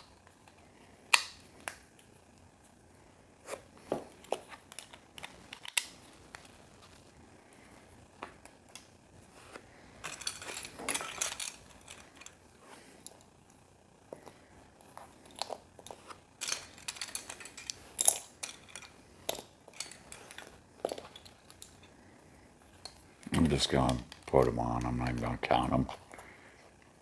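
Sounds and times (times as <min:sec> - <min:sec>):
plastic pieces clicking and rattling: 0:10.0 - 0:12.4, 0:15.3 - 0:21.9.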